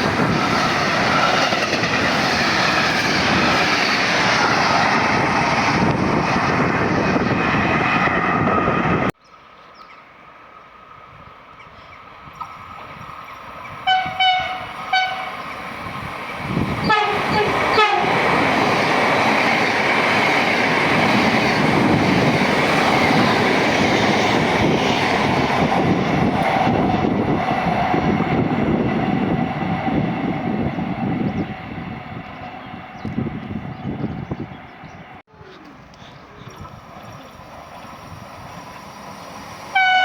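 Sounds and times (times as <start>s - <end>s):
train wheel and rail noise: 0.0s - 40.0s
train horn blasts: 13.8s - 15.5s, 16.8s - 18.2s, 39.7s - 40.0s.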